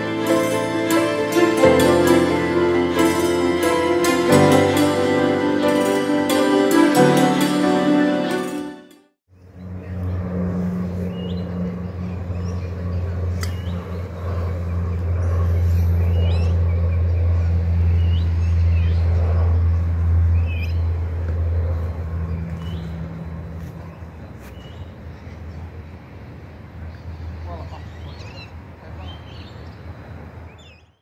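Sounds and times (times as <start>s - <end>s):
steady low hum: 9.4s - 24.4s.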